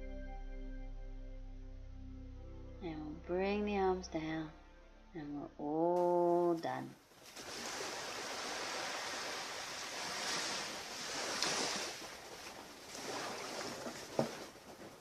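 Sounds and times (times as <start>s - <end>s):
ocean surf washing on beach: 7.2s - 15.0s.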